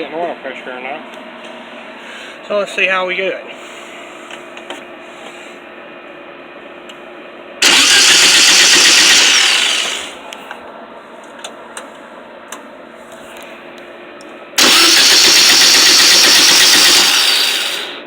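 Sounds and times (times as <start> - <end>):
starter cranking engine: 7.6 - 10.2, 14.6 - 18.0.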